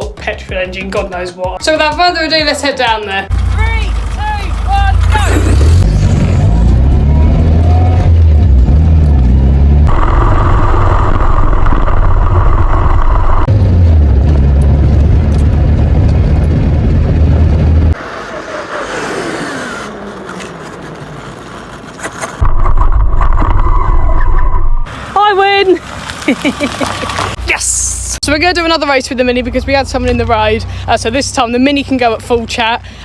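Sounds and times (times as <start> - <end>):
loud vehicle engine rumble: 3.2 - 23.5, 24.4 - 33.0
whine falling in pitch: 9.8 - 13.6.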